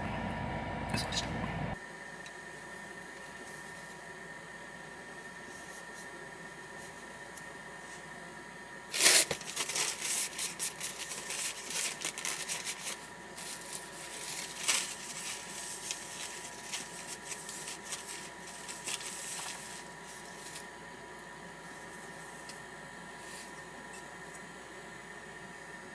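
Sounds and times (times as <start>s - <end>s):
crinkling and rustling: 8.9s - 20.9s.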